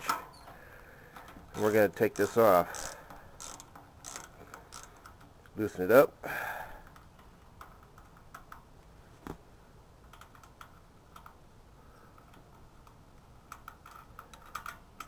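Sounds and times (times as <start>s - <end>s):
ratchet wrench clicking: 1.6s - 5.3s.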